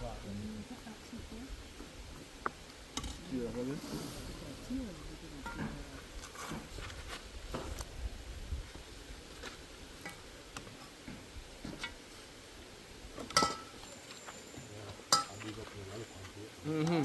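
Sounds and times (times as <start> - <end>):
metal utensils clinking against pots: 13.3 - 13.8, 15.1 - 15.5
sharp metal clanks: 13.3 - 13.8.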